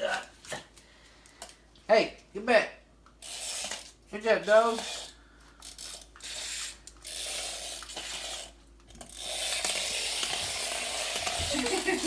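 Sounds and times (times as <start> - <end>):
toy car motor whirring: 3.2 - 12.0.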